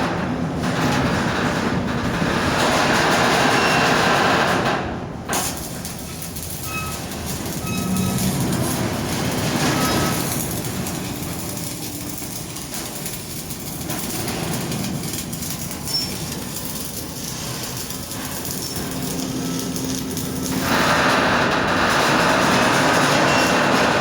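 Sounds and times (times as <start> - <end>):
shipping containers creaking metallically: 5.3 - 24.0.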